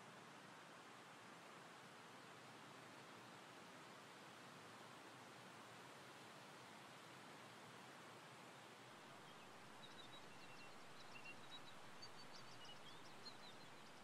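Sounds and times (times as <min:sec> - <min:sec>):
low steady hiss: 0:00.0 - 0:14.0
small birds chirping: 0:09.2 - 0:14.0.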